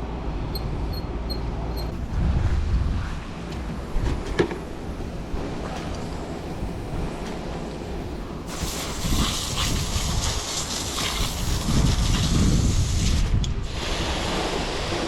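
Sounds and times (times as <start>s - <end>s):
water jet spraying car wheel: 8.4s - 15.0s.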